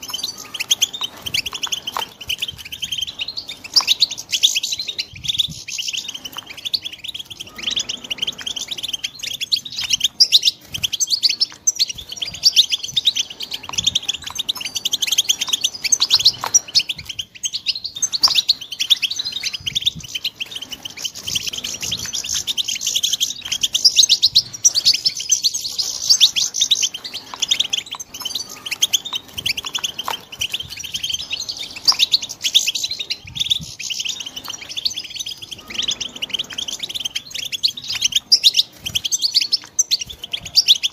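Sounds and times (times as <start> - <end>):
goldfinches twittering chirps: 0.0 - 40.9.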